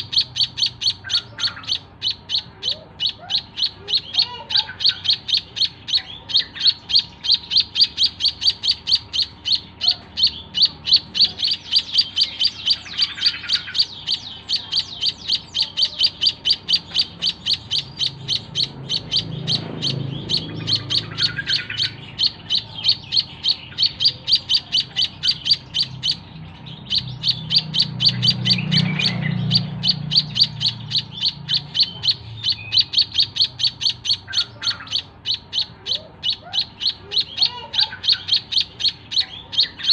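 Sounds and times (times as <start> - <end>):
bird chick chirping: 0.0 - 39.9.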